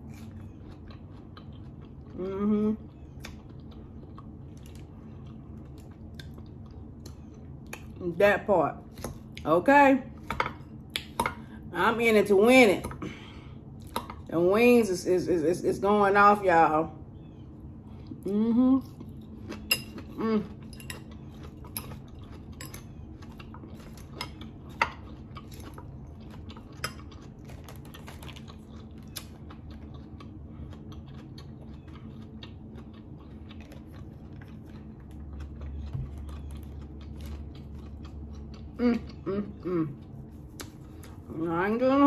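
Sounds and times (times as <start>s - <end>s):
chewing: 0.0s - 8.0s, 17.3s - 41.3s
person humming: 18.2s - 18.8s, 38.8s - 40.0s.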